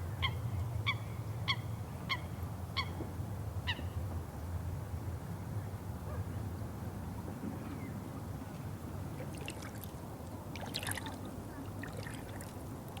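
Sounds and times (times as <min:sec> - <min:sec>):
water rushing: 0:09.0 - 0:13.0
small splashes and drips: 0:09.2 - 0:13.0.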